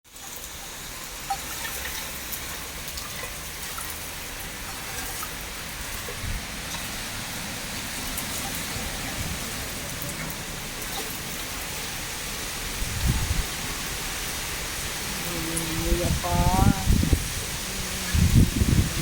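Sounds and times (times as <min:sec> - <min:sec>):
heavy rain pouring: 0:00.1 - 0:19.0
raindrops tapping: 0:00.1 - 0:19.0
gusty wind rumble: 0:05.8 - 0:19.0.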